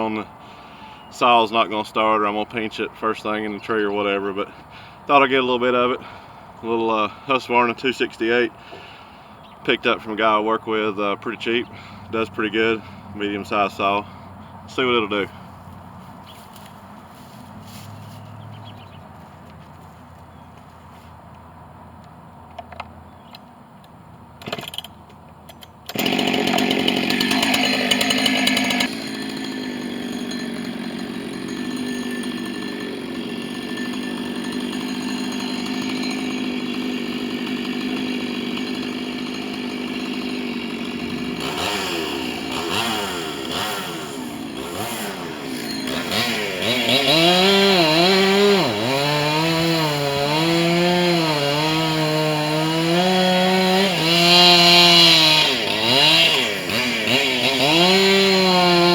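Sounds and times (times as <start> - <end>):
chainsaw engine revving and idling: 9.8 - 15.7, 25.9 - 58.9
chainsaw starter knocks: 24.4 - 41.6.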